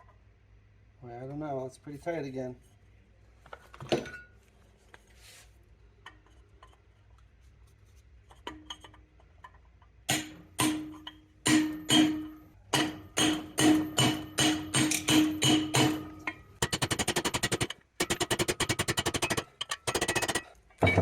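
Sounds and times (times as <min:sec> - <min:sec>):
hammer striking metal socket: 0:10.1 - 0:21.0.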